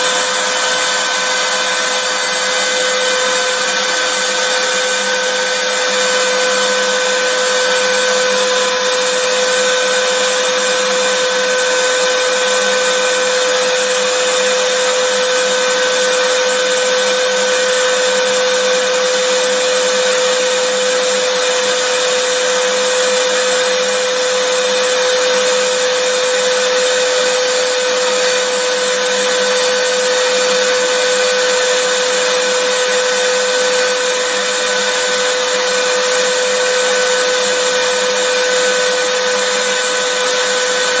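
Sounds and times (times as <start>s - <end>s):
vacuum cleaner running: 0.0s - 41.0s.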